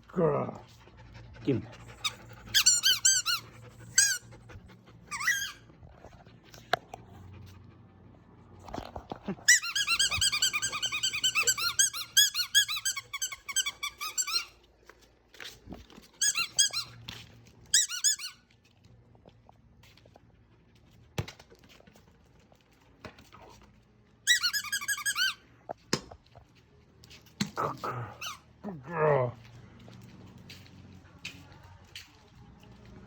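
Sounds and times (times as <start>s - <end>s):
squeaky toy squeaking: 1.8s - 4.4s, 5.0s - 5.8s, 9.4s - 14.6s, 16.2s - 17.1s, 17.7s - 18.5s, 24.2s - 25.5s, 28.1s - 28.5s.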